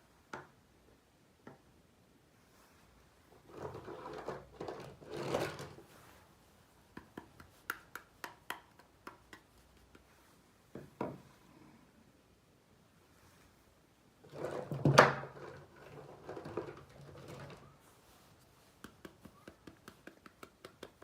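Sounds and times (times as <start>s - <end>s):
rubbing and rustling: 2.3s - 7.9s, 12.9s - 21.0s.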